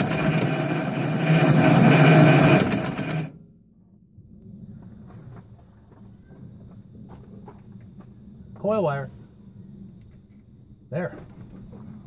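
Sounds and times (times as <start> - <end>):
car engine running: 0.0 - 3.4.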